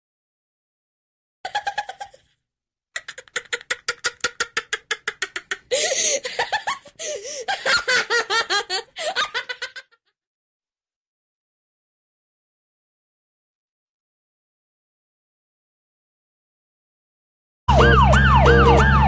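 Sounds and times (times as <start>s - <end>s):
high-pitched giggling: 1.5s - 2.3s, 3.0s - 10.0s.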